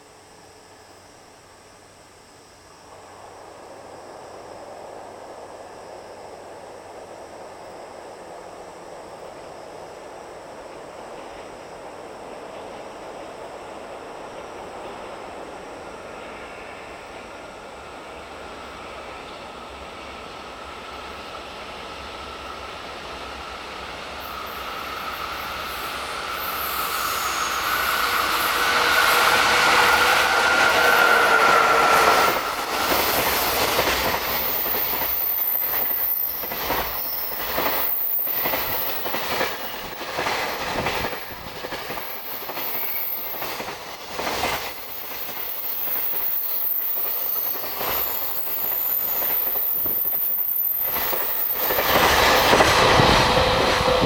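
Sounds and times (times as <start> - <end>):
diesel train passing: 0.0 - 54.0
train wheels clattering over rail joints: 28.3 - 54.0.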